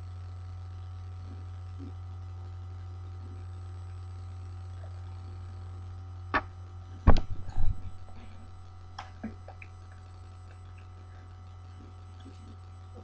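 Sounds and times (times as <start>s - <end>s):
steady low hum: 0.0s - 13.0s
sharp knocks: 6.4s - 8.0s
loud low thumps: 6.4s - 8.8s.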